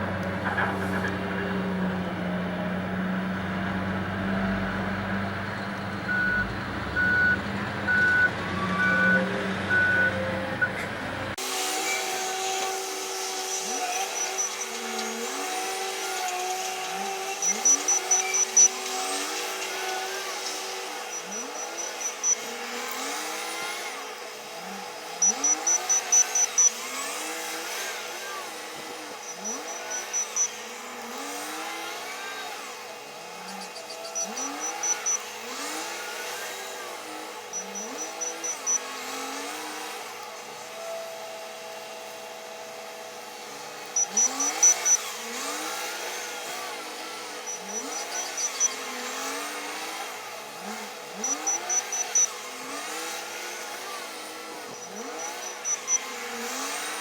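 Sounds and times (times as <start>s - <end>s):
diesel engine revving: 0.0s - 57.0s
rapid high-pitched beeps: 17.3s - 18.8s, 21.1s - 22.5s, 25.2s - 26.8s, 29.2s - 30.6s, 33.6s - 35.2s, 37.5s - 38.8s, 44.0s - 45.0s, 47.5s - 48.7s, 51.2s - 52.3s, 54.8s - 56.0s.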